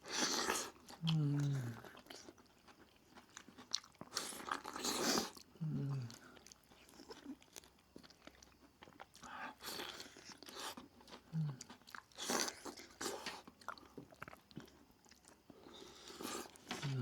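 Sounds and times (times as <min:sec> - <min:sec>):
crisp food chewing: 0:00.0 - 0:17.0.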